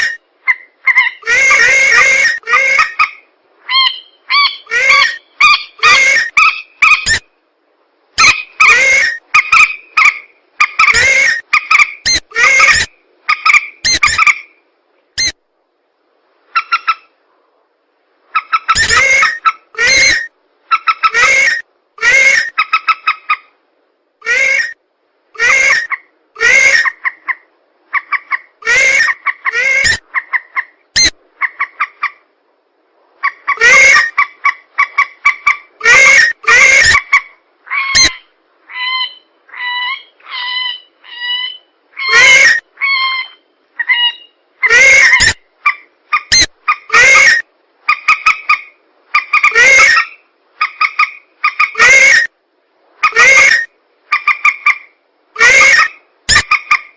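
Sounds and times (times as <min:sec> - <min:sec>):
softer clearer bird calls: 0:00.0 - 0:07.3, 0:25.4 - 0:32.2, 0:33.2 - 0:52.3
loud harsh bird calls: 0:00.9 - 0:07.2, 0:18.4 - 0:22.9, 0:24.2 - 0:24.8, 0:28.0 - 0:32.0, 0:33.2 - 0:45.4, 0:49.2 - 0:52.3, 0:53.0 - 0:54.8, 0:55.4 - 0:56.9.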